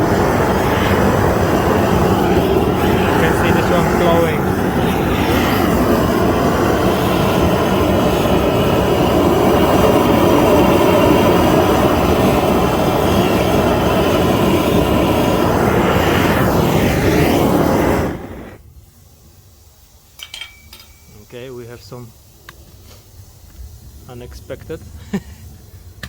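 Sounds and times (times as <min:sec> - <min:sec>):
propane torch flame roaring: 0:00.0 - 0:26.0.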